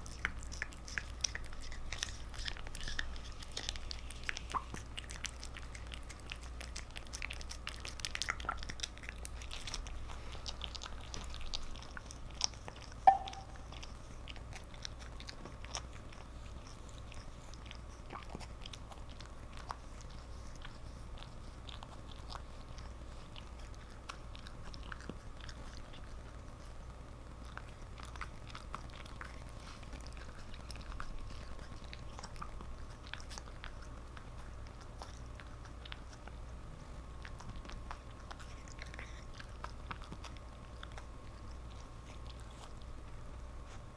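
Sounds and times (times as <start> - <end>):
cat licking and eating: 0.0 - 43.9
brief high sound: 13.1 - 13.6.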